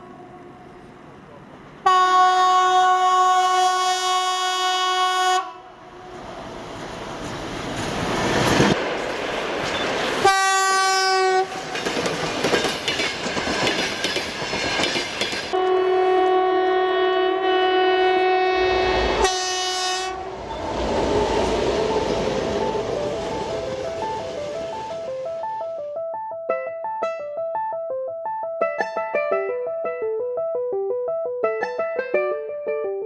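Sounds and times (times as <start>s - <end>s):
train horn blasts: 1.8s - 6.2s, 10.2s - 11.6s, 15.5s - 20.5s
moving train rumble: 5.7s - 25.8s.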